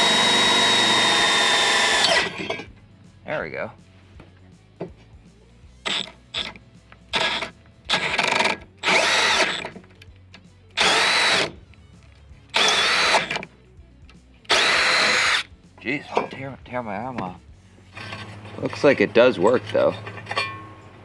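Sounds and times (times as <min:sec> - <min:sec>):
power drill into steel: 0:00.0 - 0:02.7, 0:05.8 - 0:09.8, 0:10.8 - 0:11.6, 0:12.5 - 0:13.5, 0:14.5 - 0:15.5.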